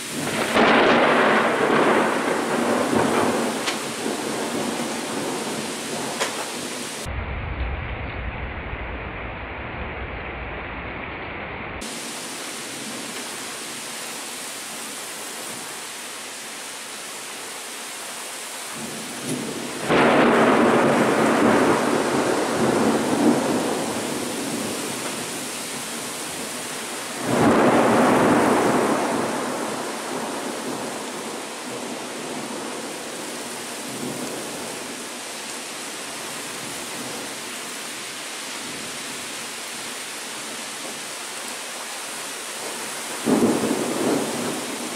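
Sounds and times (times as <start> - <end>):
heavy rain: 0.0 - 44.9
thunderclaps: 0.2 - 12.0, 18.8 - 25.2, 27.2 - 32.7, 43.2 - 44.9.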